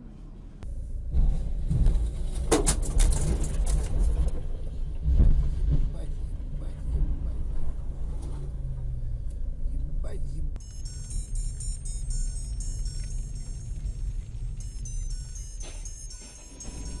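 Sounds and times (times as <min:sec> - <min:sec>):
car engine and road noise: 0:00.0 - 0:17.0
sharp knocks and clatter: 0:01.2 - 0:06.0.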